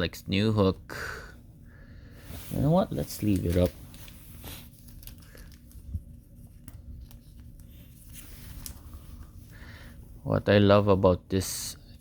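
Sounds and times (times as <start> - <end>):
cards clicking and rustling: 3.1 - 8.9.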